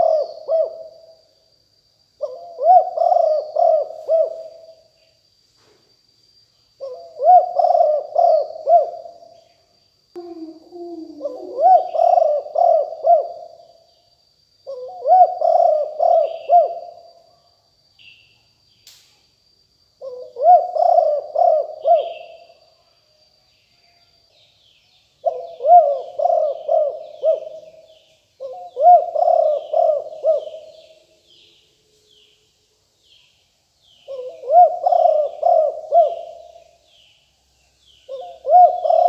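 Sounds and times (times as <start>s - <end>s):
dove cooing: 0.0s - 1.1s, 2.2s - 4.8s, 6.8s - 9.2s, 10.2s - 13.6s, 14.7s - 17.0s, 20.0s - 22.5s, 25.2s - 30.9s, 34.1s - 36.7s, 38.1s - 39.0s
small birds chirping faintly: 0.0s - 39.0s
thin steady high tone: 0.0s - 39.0s.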